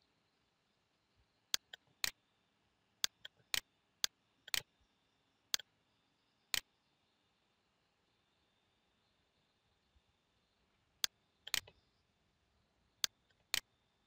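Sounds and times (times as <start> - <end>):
computer mouse clicking: 1.5 - 2.2, 3.0 - 3.7, 4.5 - 4.7, 11.4 - 11.8.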